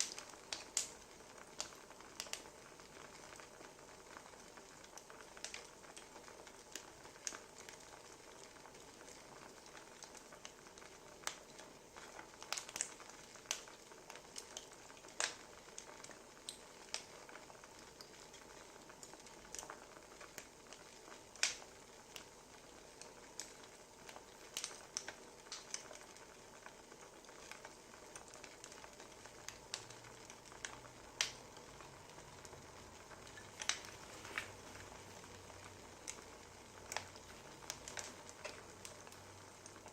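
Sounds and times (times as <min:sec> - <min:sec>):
soft steady hiss: 0:00.0 - 0:39.9
wood fire crackling: 0:00.0 - 0:39.9.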